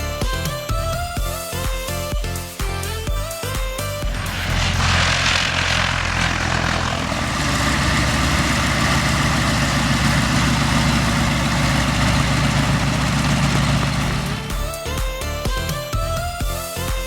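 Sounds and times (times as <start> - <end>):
broad rushing noise: 4.0 - 14.8
propeller aircraft engine drone: 4.0 - 14.8.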